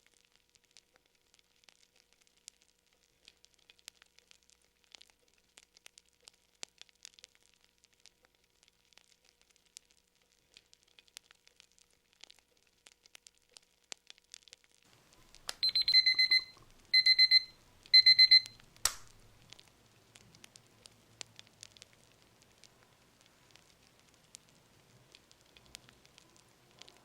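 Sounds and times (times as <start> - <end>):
faint fire crackling: 0.0 - 27.0
timer alarm beeping: 15.6 - 18.6
sharp click: 18.5 - 19.2.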